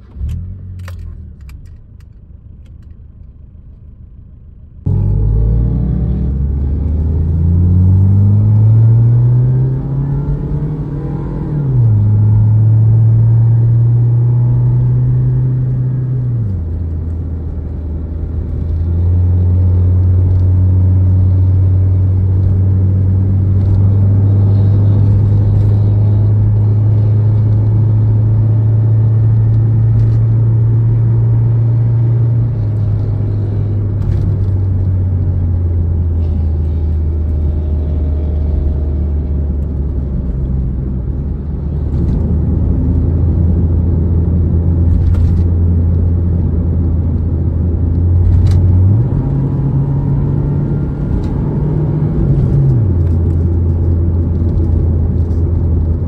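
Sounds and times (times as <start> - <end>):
car engine revving and cruising: 0.0 - 56.0.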